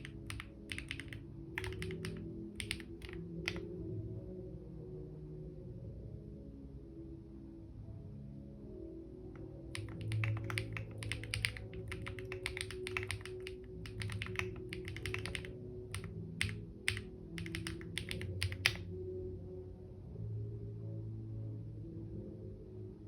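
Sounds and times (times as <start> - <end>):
typing on computer keyboard: 0.0 - 3.7, 9.4 - 18.8
soft ambient music: 0.0 - 23.0.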